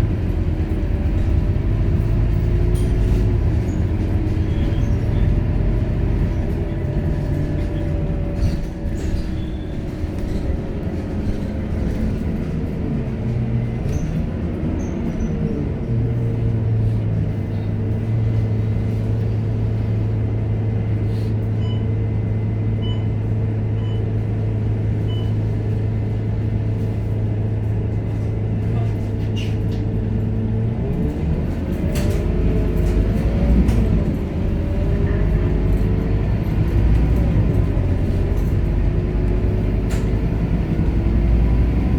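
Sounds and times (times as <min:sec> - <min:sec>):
bus diesel engine: 0:00.0 - 0:41.9.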